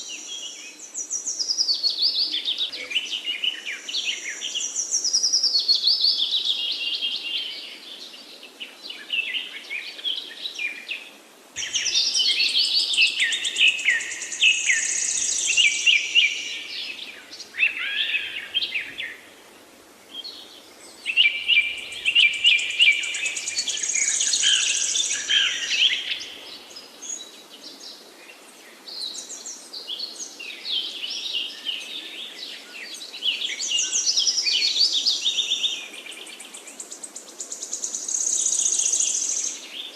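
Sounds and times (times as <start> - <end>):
bird singing: 0.0 - 19.4, 20.1 - 39.9.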